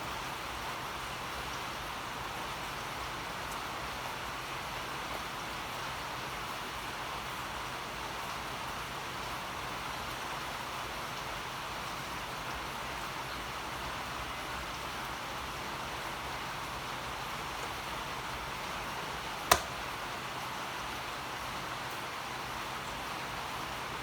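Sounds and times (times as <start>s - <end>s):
sharp click: 19.5s - 19.8s.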